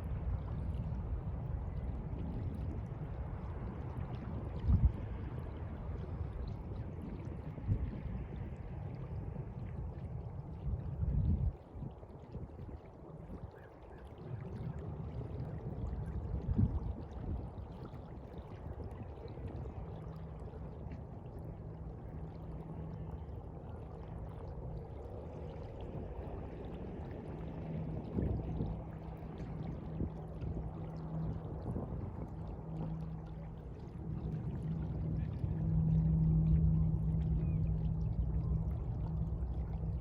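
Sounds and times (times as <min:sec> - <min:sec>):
steady low hum: 0:00.0 - 0:11.7, 0:14.3 - 0:40.0
sea water sloshing: 0:11.7 - 0:40.0.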